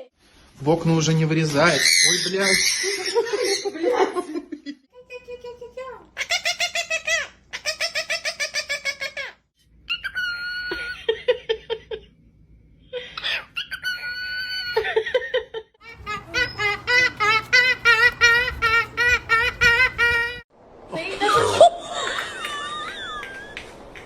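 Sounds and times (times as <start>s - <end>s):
parrot calling: 1.6s - 3.8s, 6.2s - 11.0s, 13.2s - 14.8s, 15.8s - 20.4s.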